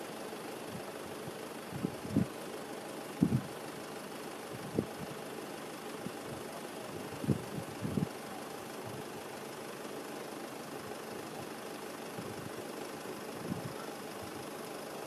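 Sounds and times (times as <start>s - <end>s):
wind buffeting microphone: 3.2s - 3.5s, 7.2s - 8.1s.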